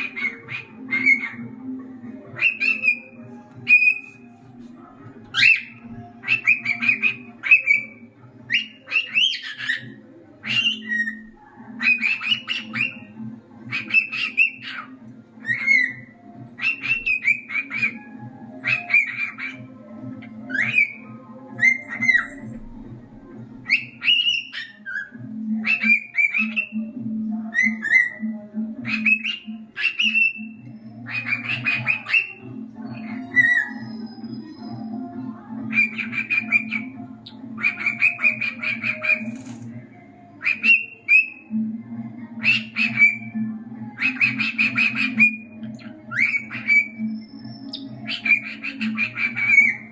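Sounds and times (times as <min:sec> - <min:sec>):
cockatiel whistling and chirping: 0:00.0 - 0:01.4, 0:02.4 - 0:04.2, 0:05.4 - 0:07.9, 0:08.5 - 0:13.1, 0:13.7 - 0:19.7, 0:20.3 - 0:22.5, 0:23.6 - 0:26.8, 0:28.9 - 0:35.0, 0:35.7 - 0:39.6, 0:40.4 - 0:41.5, 0:42.4 - 0:43.4, 0:44.0 - 0:49.9.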